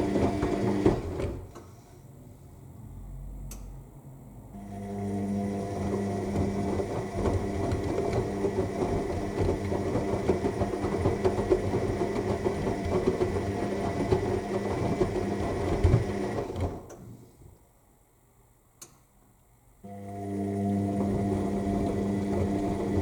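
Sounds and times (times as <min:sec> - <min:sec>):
churning water and laundry: 0:00.0 - 0:01.5, 0:04.6 - 0:16.9, 0:20.0 - 0:23.0
washing machine running: 0:00.0 - 0:01.6, 0:04.5 - 0:17.0, 0:19.9 - 0:23.0.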